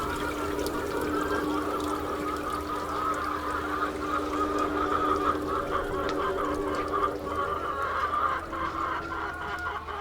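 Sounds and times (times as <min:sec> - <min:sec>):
chickens clucking and squawking: 0:02.9 - 0:10.0.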